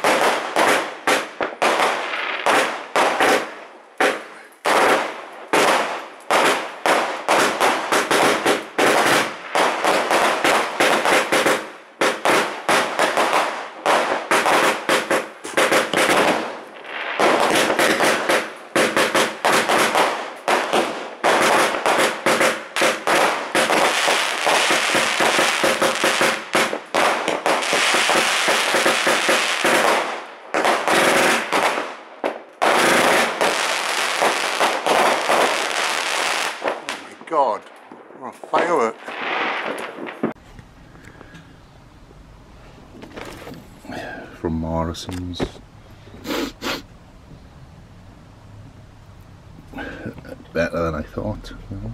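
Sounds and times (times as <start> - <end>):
firework shots and crackling: 0.0 - 40.6.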